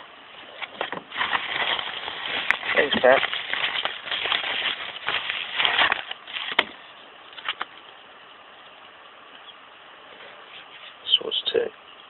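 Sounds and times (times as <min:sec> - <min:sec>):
packaging rustling: 0:00.4 - 0:06.8, 0:07.4 - 0:07.7.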